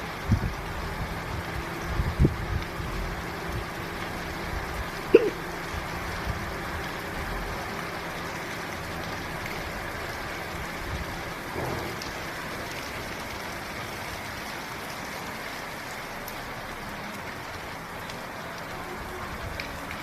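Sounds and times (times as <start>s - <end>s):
rain on a hard surface: 0.0s - 20.0s.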